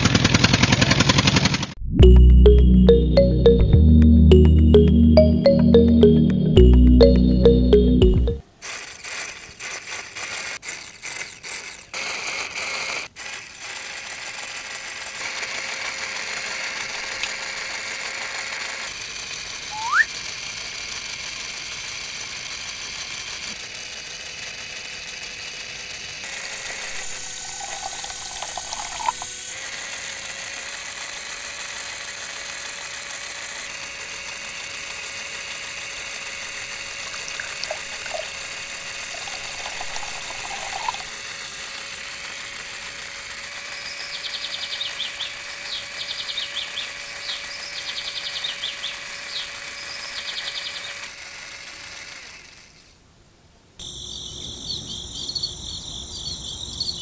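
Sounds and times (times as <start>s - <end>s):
small electric motor running: 8.6s - 52.9s
rising squeak: 19.8s - 20.1s.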